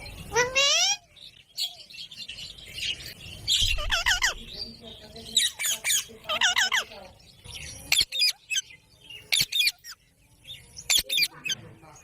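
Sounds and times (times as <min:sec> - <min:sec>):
parrot shrill calls: 0:00.3 - 0:01.1, 0:03.7 - 0:04.4.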